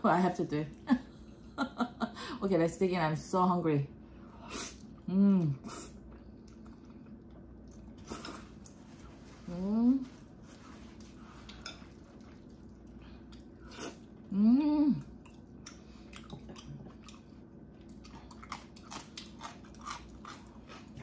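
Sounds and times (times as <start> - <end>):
wet chewing and smacking: 6.0 - 8.9, 15.0 - 21.0
person humming: 14.3 - 15.0.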